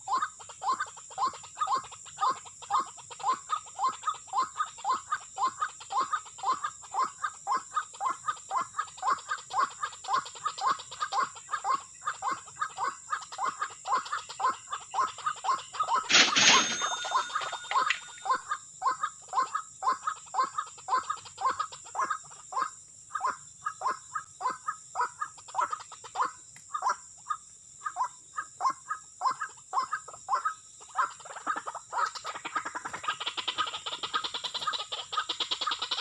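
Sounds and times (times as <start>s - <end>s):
waterhen calling: 10.1s - 19.1s.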